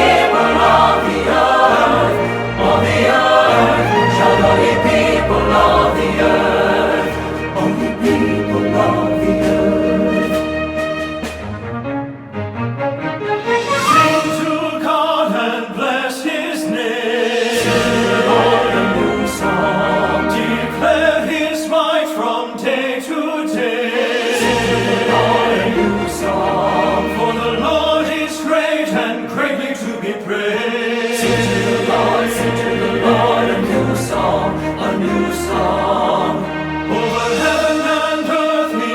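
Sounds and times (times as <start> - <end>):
bass line: 0.0 - 6.4
choir singing a worship song: 0.0 - 10.9, 13.6 - 38.9
instrumental accompaniment: 0.0 - 15.1.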